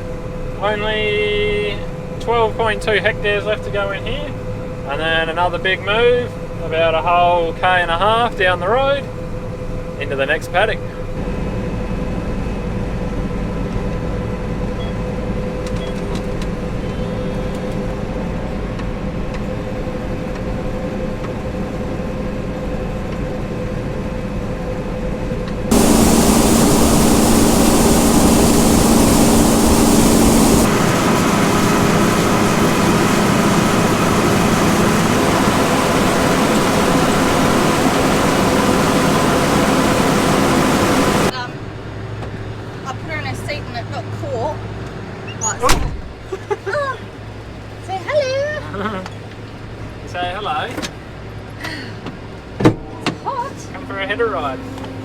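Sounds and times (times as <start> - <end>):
combine harvester running: 25.7 - 41.3.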